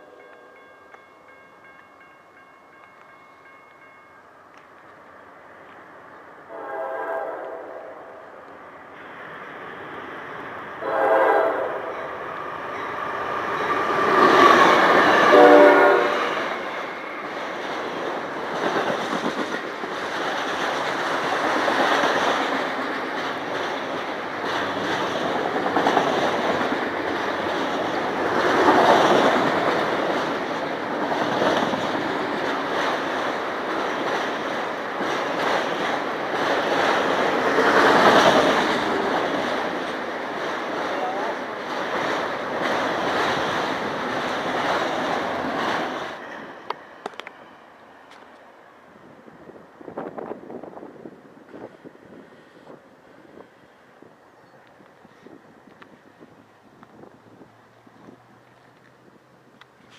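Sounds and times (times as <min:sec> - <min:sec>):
train rolling past: 0:00.0 - 0:59.9
locomotive air horn blast: 0:06.5 - 0:08.2, 0:10.8 - 0:12.0, 0:14.8 - 0:16.6
wheels clacking over rail joints: 0:11.9 - 0:48.5.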